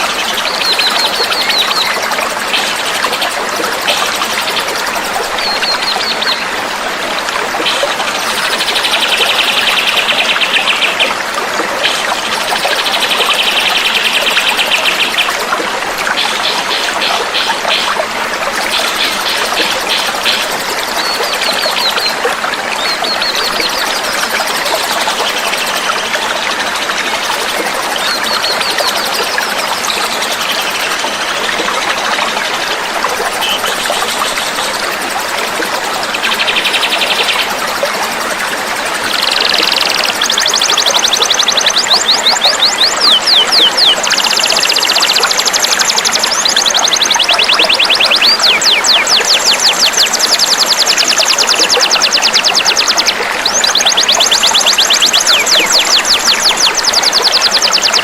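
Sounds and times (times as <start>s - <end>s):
songbirds trilling and whistling: 0.0s - 6.5s, 39.0s - 58.0s
trickling water: 0.0s - 58.0s.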